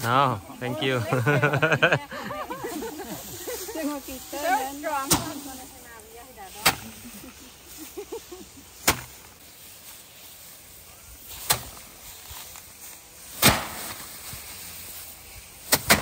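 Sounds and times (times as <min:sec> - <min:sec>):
rice stalks striking wooden board: 0:05.0 - 0:05.4, 0:06.5 - 0:07.1, 0:08.8 - 0:09.4, 0:11.3 - 0:12.5, 0:13.2 - 0:14.3, 0:15.6 - 0:16.0.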